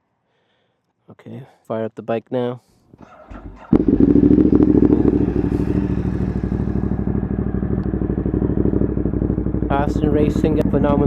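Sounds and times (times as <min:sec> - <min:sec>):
motorcycle engine starting and idling: 0:03.0 - 0:11.0.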